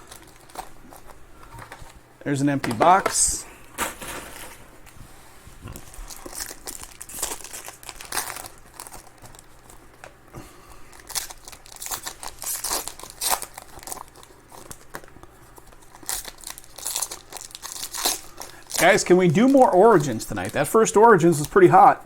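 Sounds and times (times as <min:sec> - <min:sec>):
card pack wrappers tearing: 0:00.0 - 0:02.0, 0:05.8 - 0:10.0, 0:10.9 - 0:21.9.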